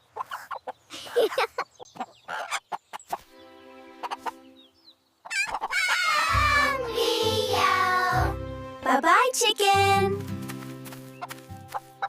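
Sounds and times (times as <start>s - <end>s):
cartoon chicken clucks: 0.1s - 3.2s, 4.0s - 4.4s, 5.2s - 6.7s.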